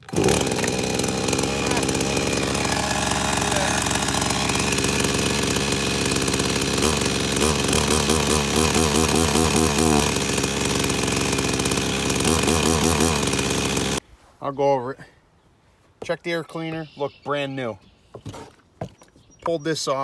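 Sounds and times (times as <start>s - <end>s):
chainsaw engine running: 0.0s - 14.0s.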